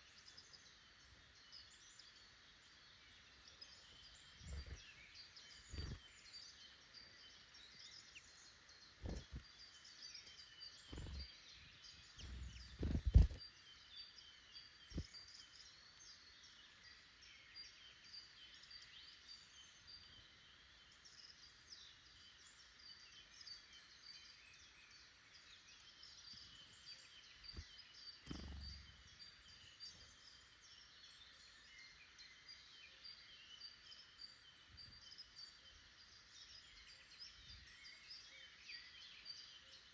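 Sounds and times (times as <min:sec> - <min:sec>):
birds chirping and singing: 0:03.1 - 0:13.5, 0:24.9 - 0:39.9
dull low thumps: 0:12.2 - 0:13.4.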